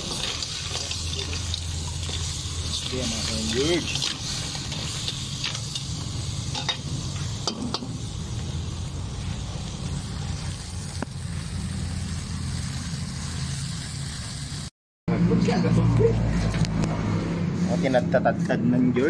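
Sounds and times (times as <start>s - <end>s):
crabs sizzling in pan: 0.0s - 14.7s.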